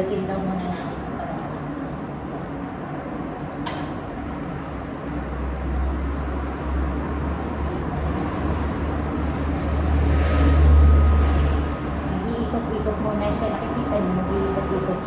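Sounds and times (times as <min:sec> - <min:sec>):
washing machine click: 0:03.6 - 0:04.0.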